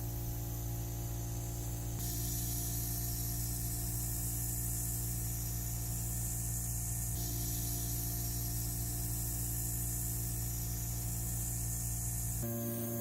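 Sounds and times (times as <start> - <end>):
machine hum: 12.2 - 13.0.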